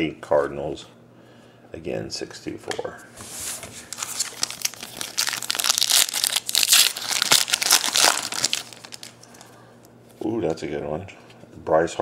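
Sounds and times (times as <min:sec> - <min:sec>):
wrapper tearing and crumpling: 0:03.9 - 0:09.2.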